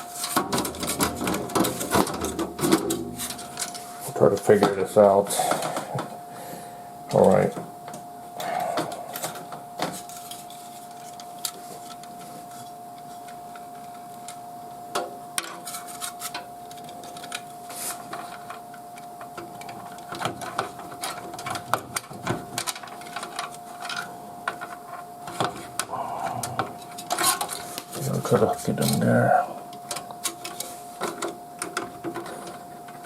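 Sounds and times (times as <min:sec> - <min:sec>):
computer parts clicking and rattling: 0:00.2 - 0:03.8
faint steady tone: 0:03.0 - 0:20.2.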